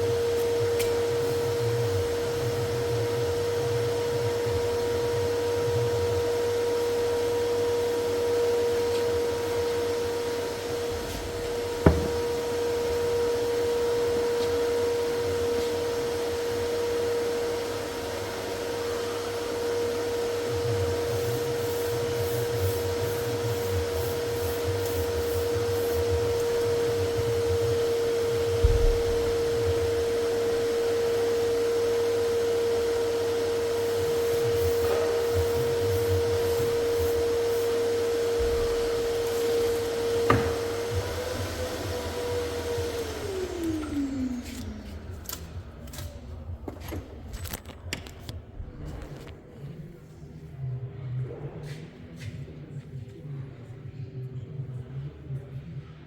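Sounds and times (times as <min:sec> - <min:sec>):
electric blower motor humming: 0:00.0 - 0:46.2
sharp knocks: 0:11.8 - 0:12.4.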